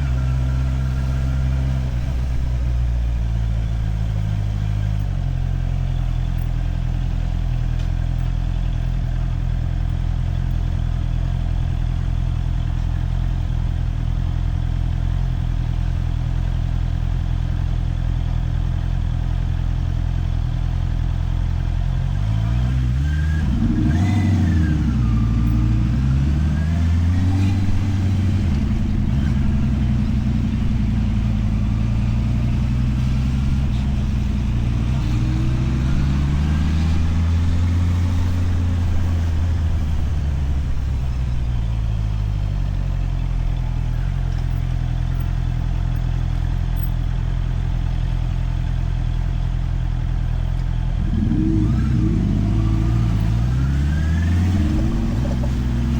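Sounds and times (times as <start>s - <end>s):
motorcycle engine revving: 0.0s - 17.6s, 19.8s - 55.9s.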